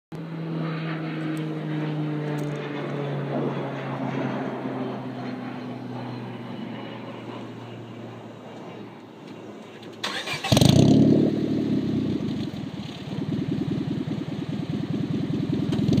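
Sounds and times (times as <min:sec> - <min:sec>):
propeller airplane flying past: 0:00.2 - 0:16.0.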